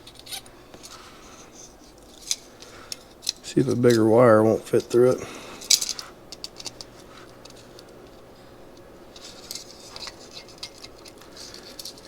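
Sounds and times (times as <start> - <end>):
metallic clinks of small parts: 5.6 - 7.9, 9.1 - 12.0.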